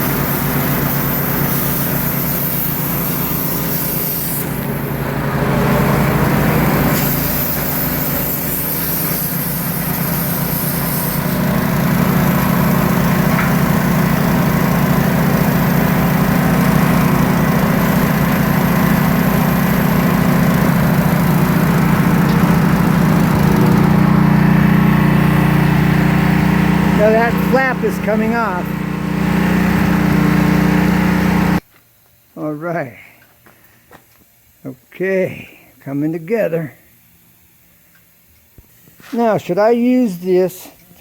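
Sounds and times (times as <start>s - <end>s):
high hiss: 0.0s - 5.1s, 6.5s - 13.6s
small engine running: 0.0s - 31.6s.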